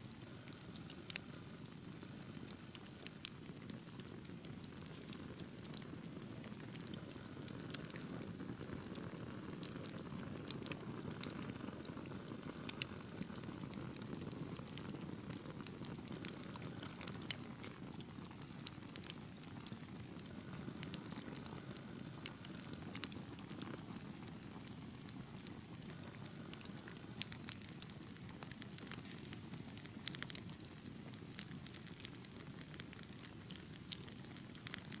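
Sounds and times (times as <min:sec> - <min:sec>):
fire popping and snapping: 0:00.1 - 0:35.0
wood fire crackling: 0:00.1 - 0:35.0.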